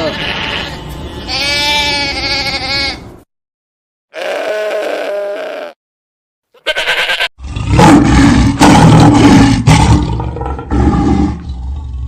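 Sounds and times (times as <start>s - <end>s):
large animal roaring: 7.4s - 12.0s.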